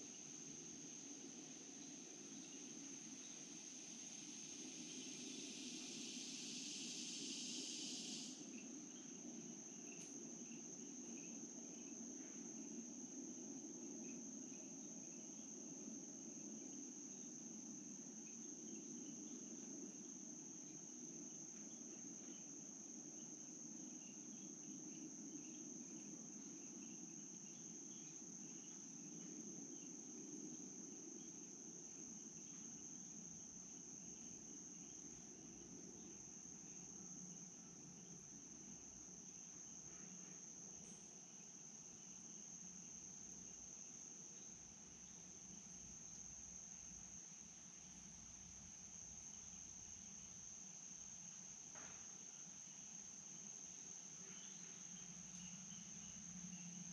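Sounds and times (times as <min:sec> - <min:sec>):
high-pitched insect trill: 0:00.0 - 0:56.9
loud hiss: 0:04.6 - 0:08.6.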